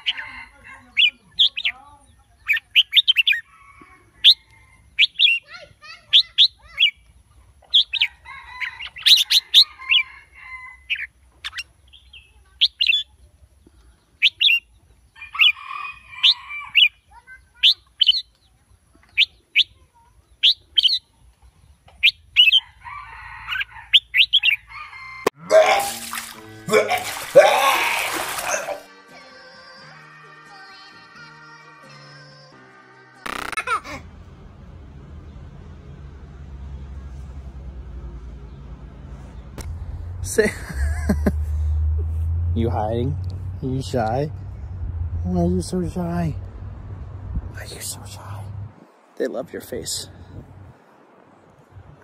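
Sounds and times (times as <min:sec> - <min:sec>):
bulbul chirping song: 0:00.0 - 0:03.5, 0:04.2 - 0:10.1, 0:10.8 - 0:15.6, 0:16.2 - 0:22.7, 0:23.5 - 0:24.7
soft bird calls: 0:00.0 - 0:22.8.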